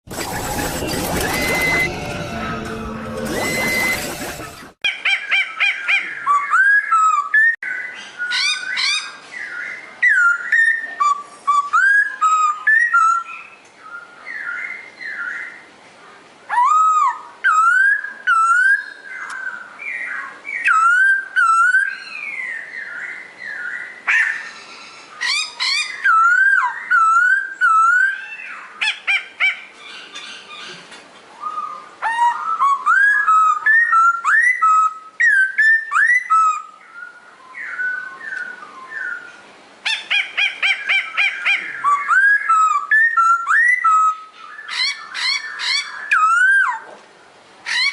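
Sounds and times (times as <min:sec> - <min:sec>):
songbird whistling song: 0:31.4 - 0:46.8.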